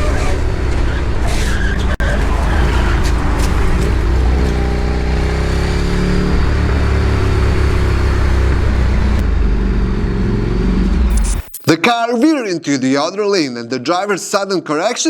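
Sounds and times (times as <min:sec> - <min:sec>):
vehicle engine rumble: 0:00.0 - 0:11.4
road noise: 0:00.0 - 0:11.5.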